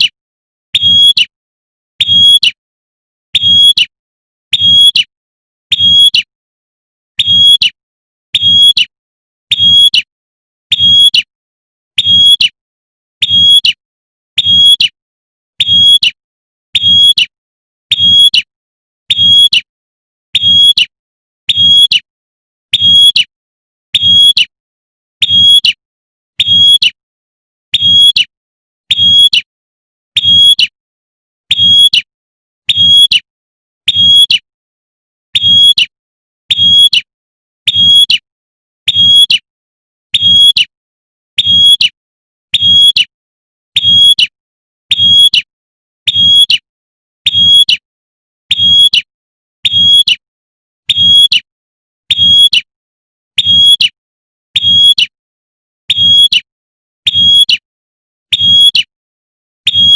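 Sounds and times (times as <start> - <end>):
bird short high chirp: 43.8 - 45.4, 46.1 - 46.6, 48.5 - 50.2, 52.1 - 52.7, 53.4 - 54.0, 54.6 - 55.2, 57.1 - 57.6.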